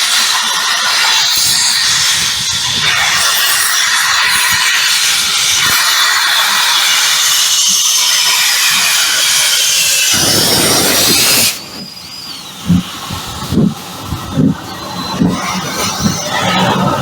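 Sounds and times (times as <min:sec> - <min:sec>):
locomotive steam hiss: 0:00.0 - 0:17.0.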